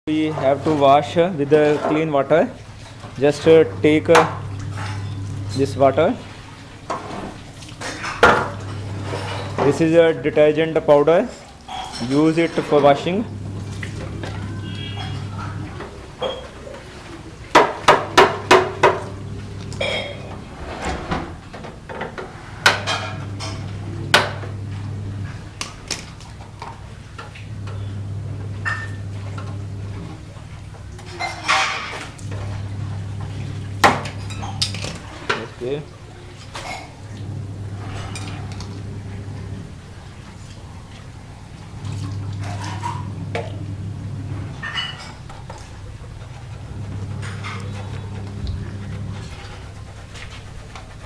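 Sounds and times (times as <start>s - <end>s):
water splashing: 0.1s - 20.6s, 28.8s - 51.0s
scrubbing: 10.9s - 21.0s, 29.1s - 51.0s
low hum: 36.8s - 51.0s.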